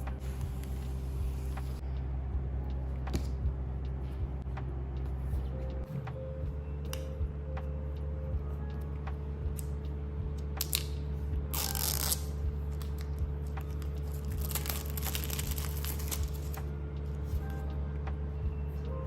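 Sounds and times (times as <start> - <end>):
packaging tearing and crinkling: 11.5 - 16.6.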